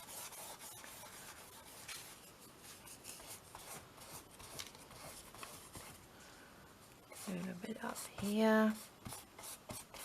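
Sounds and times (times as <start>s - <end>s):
paper rustling and rubbing: 0.0s - 6.0s.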